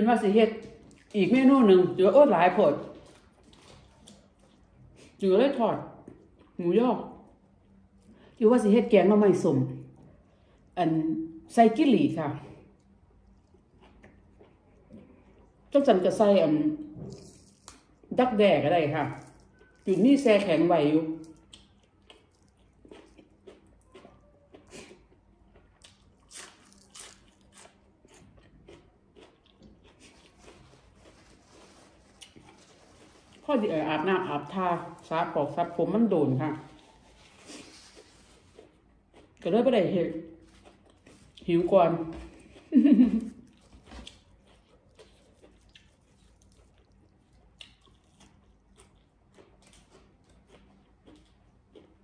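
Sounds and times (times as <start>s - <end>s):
person chewing crunchy greens: 0.6s - 1.5s, 2.6s - 5.2s, 12.6s - 15.8s, 17.1s - 18.2s, 18.9s - 35.4s, 36.6s - 52.0s.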